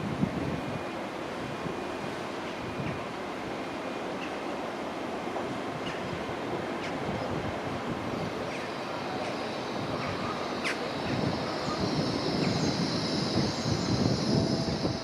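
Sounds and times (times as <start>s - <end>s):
train rumbling: 0.0s - 15.0s
high steady squeal: 8.2s - 15.0s.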